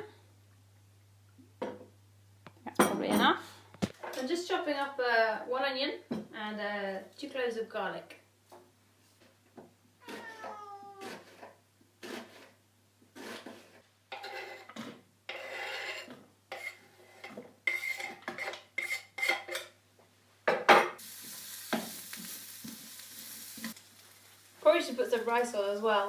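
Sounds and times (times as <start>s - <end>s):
onion sizzling in hot oil: 21.0s - 26.0s.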